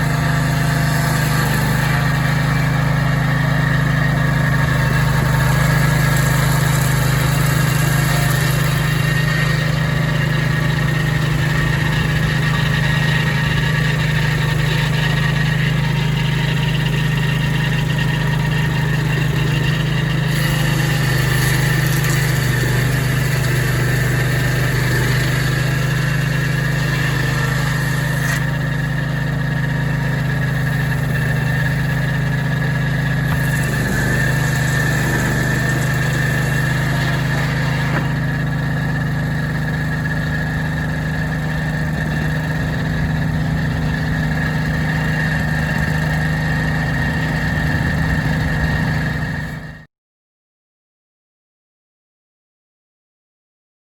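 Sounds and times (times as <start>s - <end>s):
sawmill engine running: 0.0s - 49.9s.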